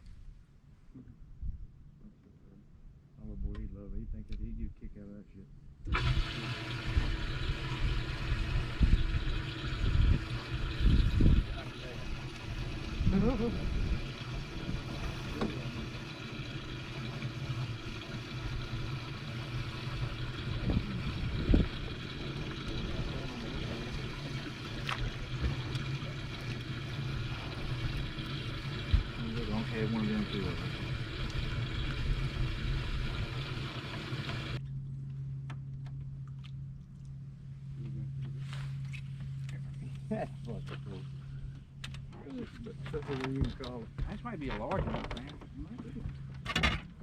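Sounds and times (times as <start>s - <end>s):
wind: 0.0s - 47.0s
water noise: 5.8s - 34.6s
boat motor humming: 5.9s - 47.0s.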